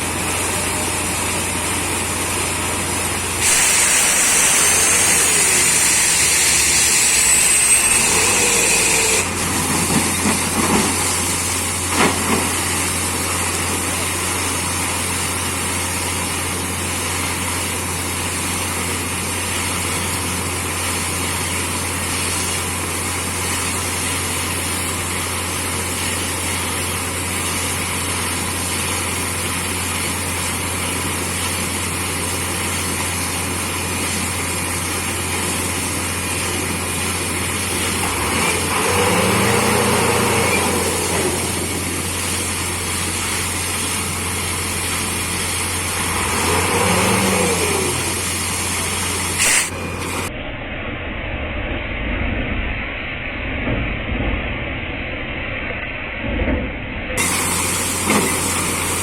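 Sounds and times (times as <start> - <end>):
air compressor hum: 0.0 - 16.0, 35.8 - 50.3, 57.2 - 59.0
drilling rig diesel engine: 0.0 - 52.2, 57.0 - 59.0.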